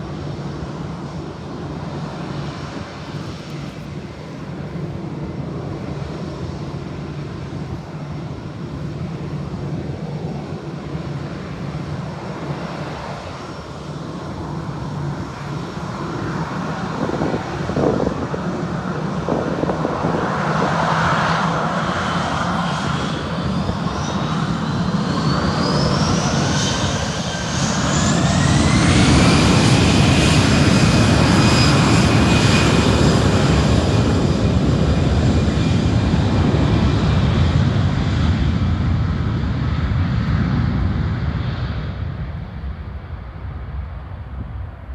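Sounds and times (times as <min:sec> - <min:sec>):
jet engines spooling up: 0:14.4 - 0:39.0.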